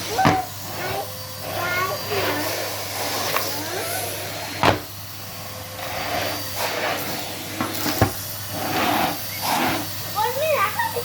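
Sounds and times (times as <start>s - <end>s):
vacuum cleaner hum: 0.0s - 11.0s
sharp knocks: 4.6s - 4.9s.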